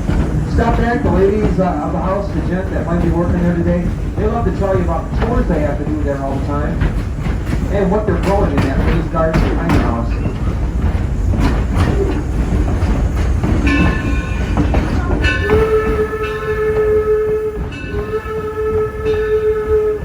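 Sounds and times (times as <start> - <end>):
steam locomotive rumbling: 0.0 - 20.0
steam whistle blast: 15.2 - 20.0.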